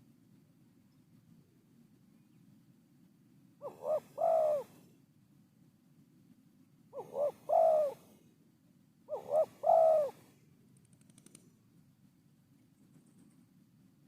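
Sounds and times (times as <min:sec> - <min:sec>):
dove cooing: 0:03.6 - 0:04.9, 0:06.9 - 0:08.2, 0:09.1 - 0:10.3.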